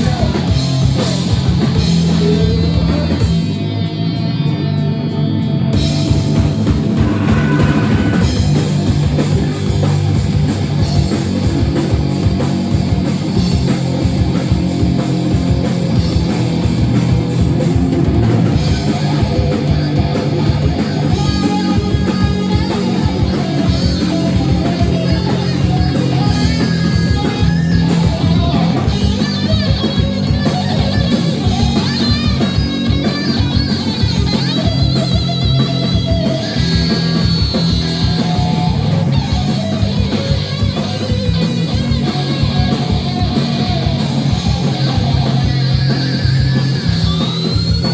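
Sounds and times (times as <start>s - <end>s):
drum kit beat: 0.0s - 4.5s, 5.8s - 47.9s
bass guitar: 0.0s - 47.9s
distorted electric guitars: 0.0s - 47.9s.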